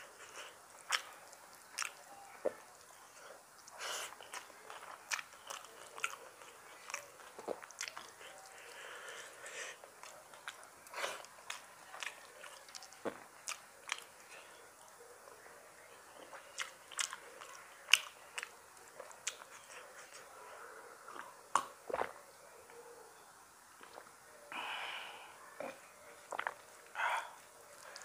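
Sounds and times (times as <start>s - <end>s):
chewing with wet mouth clicks: 0.2s - 22.8s, 23.8s - 24.2s, 25.6s - 28.0s.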